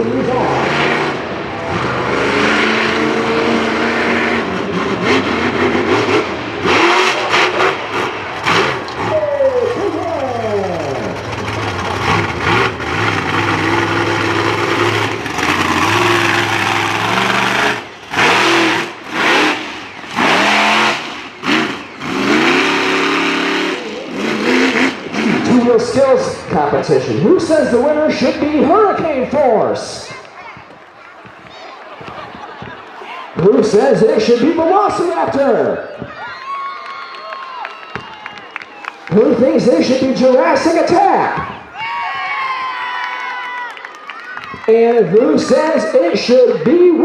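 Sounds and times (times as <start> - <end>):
monster truck engine revving: 0.0 - 30.1, 33.4 - 35.8, 39.0 - 41.6.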